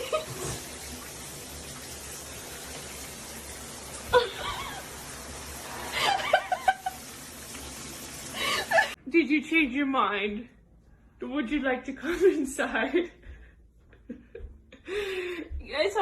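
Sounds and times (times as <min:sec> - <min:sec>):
person laughing: 0:04.1 - 0:04.9, 0:05.9 - 0:07.0, 0:08.4 - 0:09.0.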